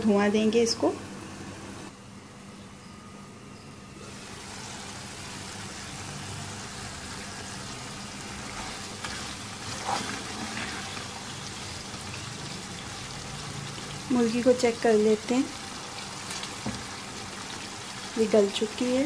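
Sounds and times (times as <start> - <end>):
gravy bubbling and sizzling: 4.0 - 19.0
spatula scraping a pan: 8.4 - 11.1.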